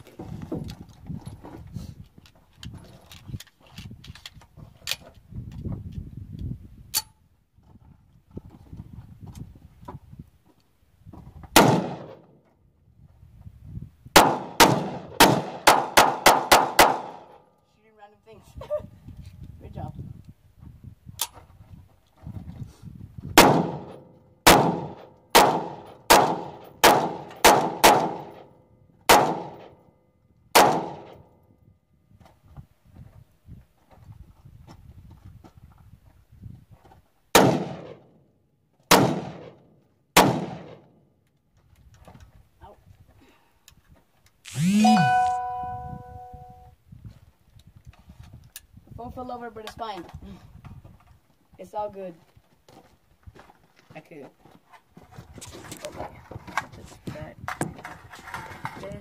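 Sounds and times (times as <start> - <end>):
gunshots with ringing echo: 14.2 - 17.3, 23.4 - 28.4, 29.1 - 29.8, 30.5 - 31.2, 38.9 - 39.5, 40.2 - 40.8.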